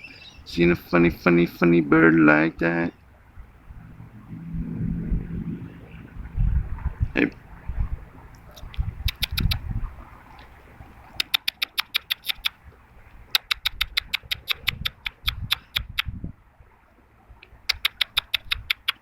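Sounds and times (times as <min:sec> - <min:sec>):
person making mouth clicks: 0:08.6 - 0:09.7, 0:11.2 - 0:12.6, 0:13.3 - 0:16.2, 0:17.4 - 0:19.0.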